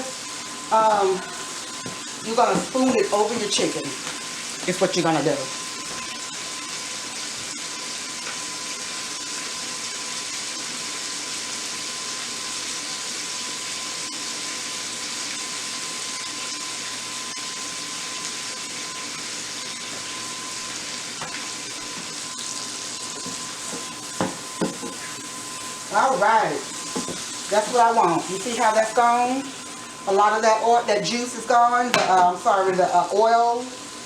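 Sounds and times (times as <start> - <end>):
mushrooms sizzling in a pan: 0.0 - 34.0.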